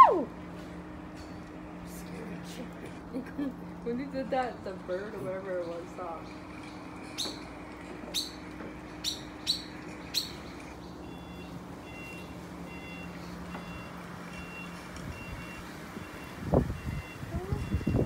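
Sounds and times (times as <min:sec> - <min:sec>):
low steady hum: 0:00.0 - 0:18.0
bird high chirps: 0:09.0 - 0:12.3.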